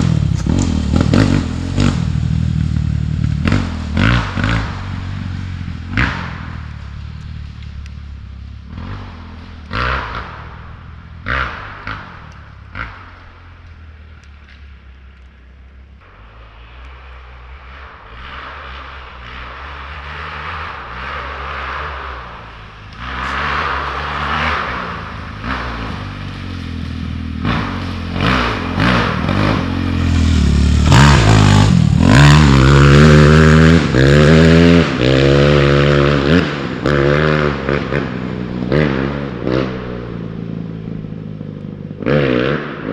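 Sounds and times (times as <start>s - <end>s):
dirt bike engine revving: 0.0s - 13.5s, 16.0s - 42.9s.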